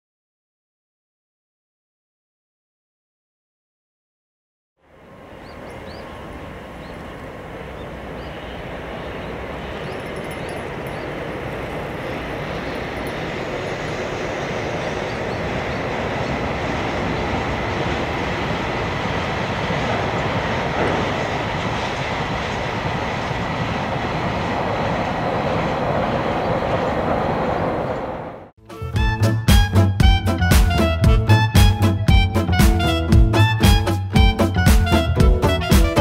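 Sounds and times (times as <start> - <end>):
freight train wheels rumbling on rail: 5.0 - 28.5.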